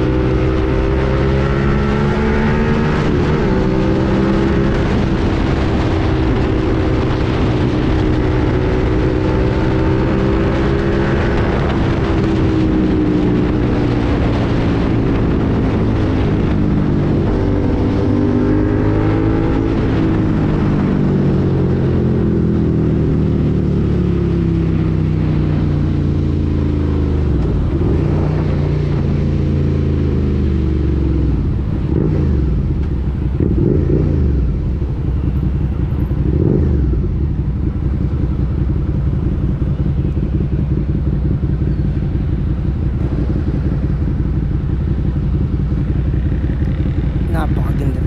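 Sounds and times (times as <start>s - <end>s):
motorcycle revving: 0.0s - 48.0s
motorcycle engine slowing and idling: 19.9s - 47.3s.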